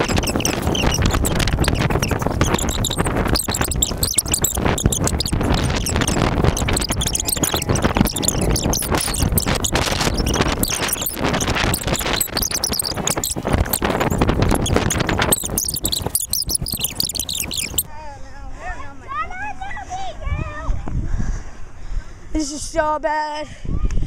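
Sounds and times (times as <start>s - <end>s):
wind buffeting microphone: 0.0s - 17.9s.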